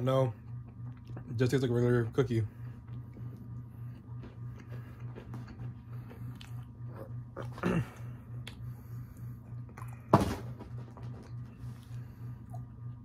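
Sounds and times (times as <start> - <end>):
low pulsing hum: 0.0 - 13.0
chewing crunchy cookie: 0.3 - 1.8, 2.6 - 10.1.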